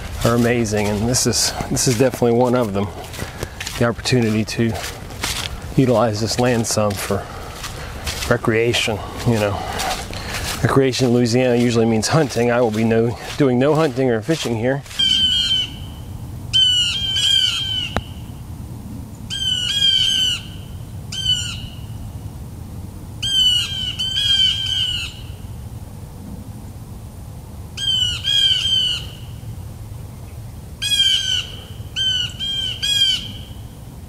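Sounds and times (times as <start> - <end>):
bird calling: 0.0 - 18.4, 19.2 - 22.1, 23.2 - 25.5, 27.8 - 29.4, 30.3 - 33.8.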